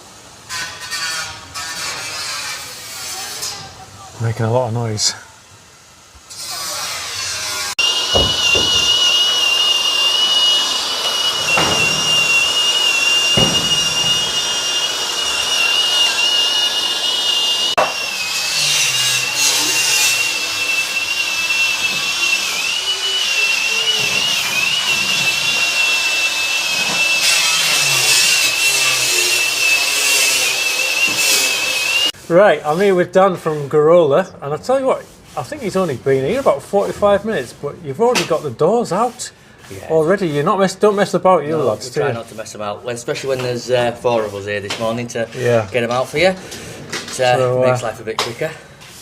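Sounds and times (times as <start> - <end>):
power tool whining: 6.3 - 32.2.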